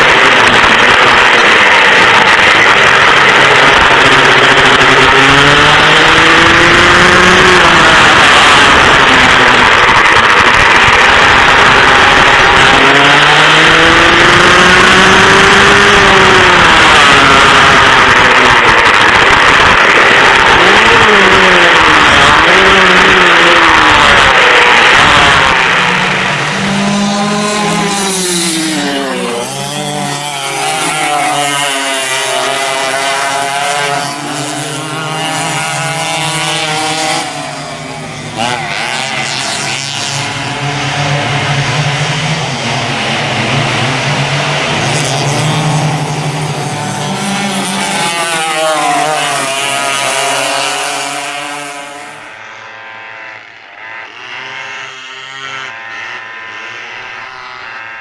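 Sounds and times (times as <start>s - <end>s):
two-stroke kart engines revving: 0.0s - 58.0s.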